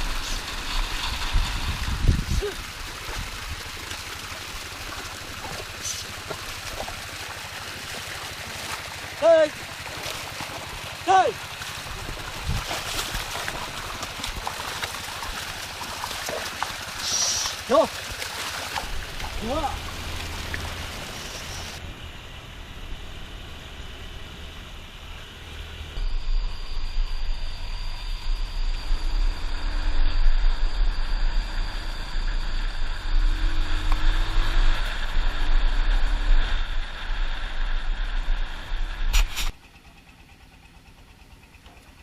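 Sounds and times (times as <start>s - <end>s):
wind rumble on microphone: 0.0s - 3.8s, 11.8s - 14.6s, 25.0s - 39.6s
motorbike running: 0.0s - 42.0s.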